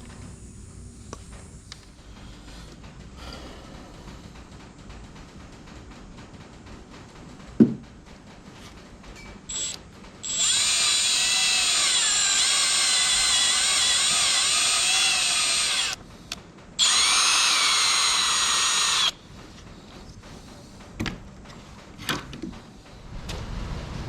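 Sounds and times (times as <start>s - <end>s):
knock: 7.6s - 7.8s
power drill whining: 9.5s - 16.0s, 16.8s - 19.2s.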